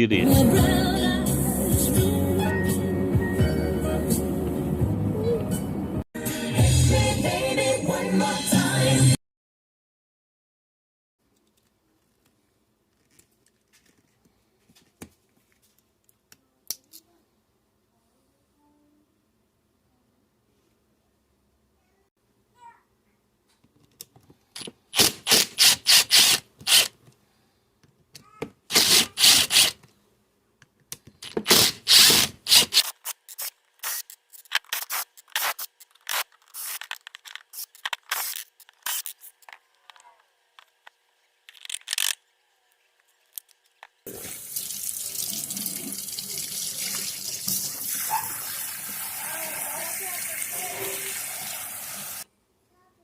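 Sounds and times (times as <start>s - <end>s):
water running: 44.1s - 52.3s.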